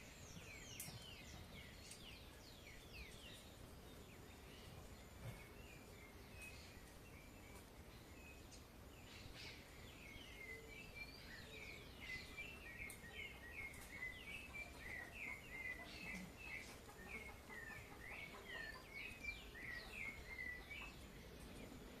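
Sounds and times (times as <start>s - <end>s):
low background hiss: 0.0s - 22.0s
songbird chirping: 0.0s - 22.0s.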